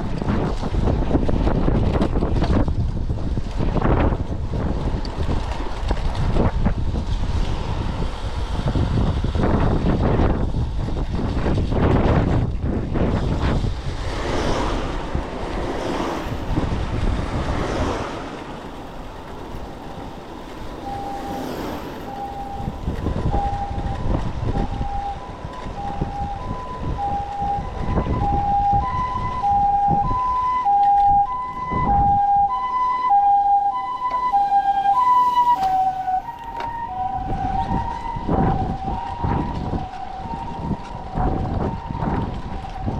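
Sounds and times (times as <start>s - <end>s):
wind on microphone: 0.0s - 42.9s
two-tone ambulance siren: 14.2s - 42.9s.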